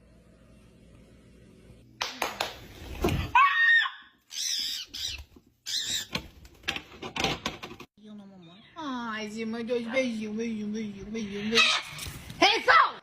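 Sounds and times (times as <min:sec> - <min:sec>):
parrot squawking: 0:04.3 - 0:06.1
knocks and rustles: 0:06.1 - 0:07.9.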